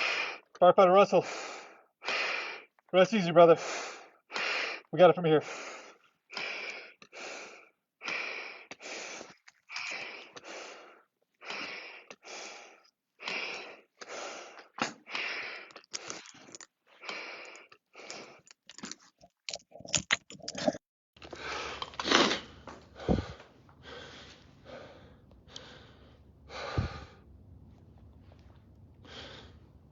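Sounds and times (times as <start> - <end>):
person breathing hard: 0.0 - 0.5, 1.2 - 2.7, 3.6 - 18.6, 21.2 - 29.9
low steady hum: 22.5 - 29.9.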